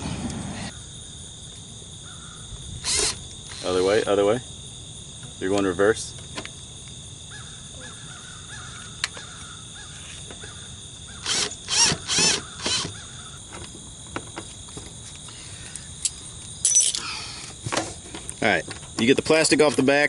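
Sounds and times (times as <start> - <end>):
bird cawing: 2.0 - 2.5, 7.3 - 11.5, 12.1 - 13.4
cordless drill whining: 2.8 - 4.0, 11.2 - 13.0.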